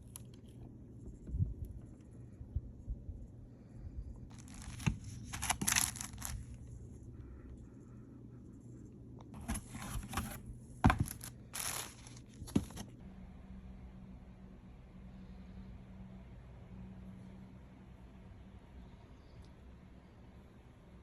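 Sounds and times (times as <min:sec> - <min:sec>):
packaging tearing and crinkling: 0:04.3 - 0:06.6, 0:11.0 - 0:12.8.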